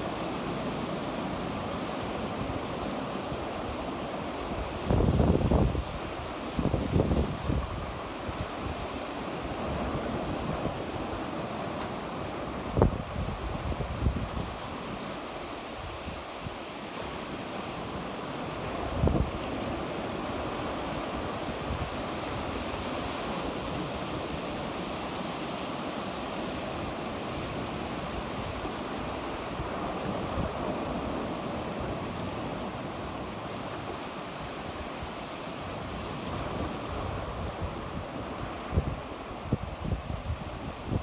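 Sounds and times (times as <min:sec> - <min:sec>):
sea waves washing on shore: 0:00.0 - 0:41.0.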